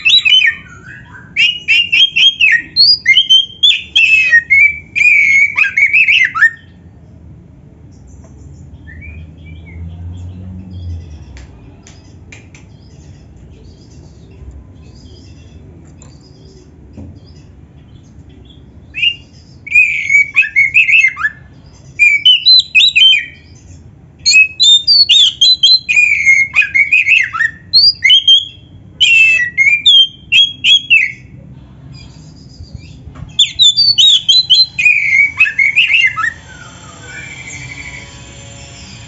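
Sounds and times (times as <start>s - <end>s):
bird singing varied whistled phrases: 0.0s - 6.8s, 18.9s - 23.5s, 24.2s - 31.3s, 32.6s - 38.0s.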